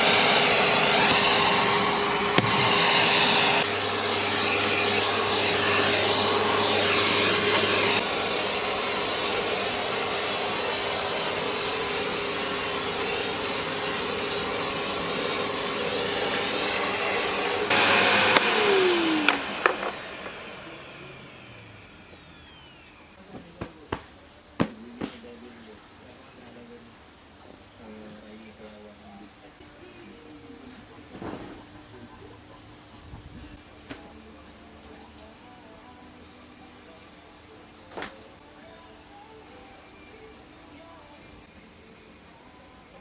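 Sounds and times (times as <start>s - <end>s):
appliance motor whirring: 0.0s - 23.2s.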